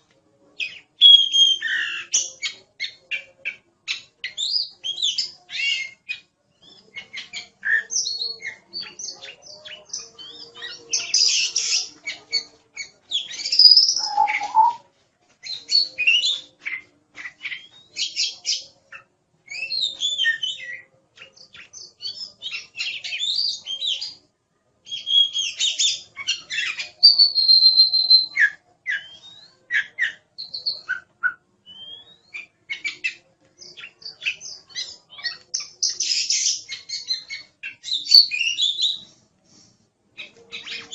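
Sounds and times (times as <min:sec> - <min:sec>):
bird singing chirps and trills: 0:06.6 - 0:14.8.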